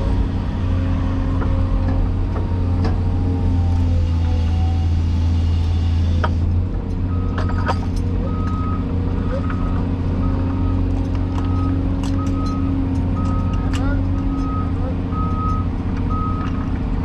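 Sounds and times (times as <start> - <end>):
excavator diesel engine running: 0.0 - 17.0
reversing alarm beeping: 7.1 - 16.6.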